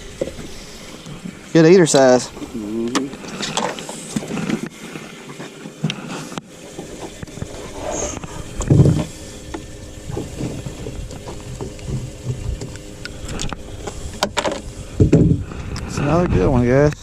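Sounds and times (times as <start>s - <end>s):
knocks and thumps of fish handling: 8.6s - 12.8s, 14.1s - 15.5s.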